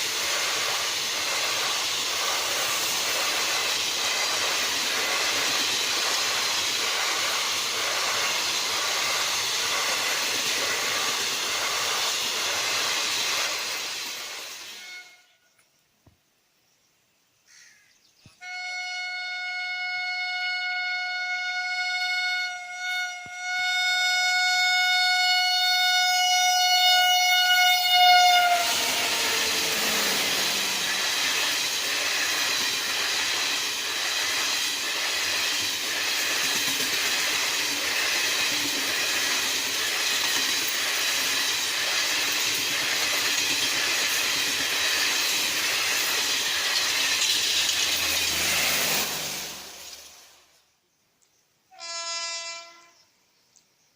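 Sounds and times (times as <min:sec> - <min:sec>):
train wheels clattering over rails: 0:00.0 - 0:14.6, 0:27.7 - 0:50.2
train horn blast: 0:14.7 - 0:15.4, 0:18.4 - 0:30.8, 0:51.7 - 0:53.0.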